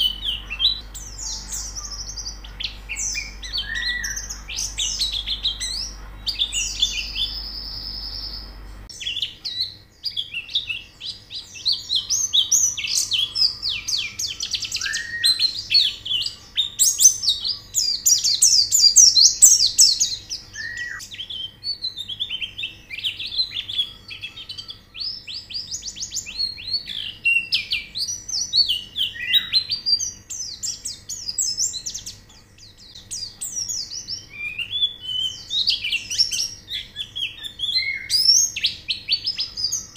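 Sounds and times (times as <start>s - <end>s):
steady buzzy high note: 0.0s - 8.9s
birds chirping and trilling: 0.0s - 39.9s.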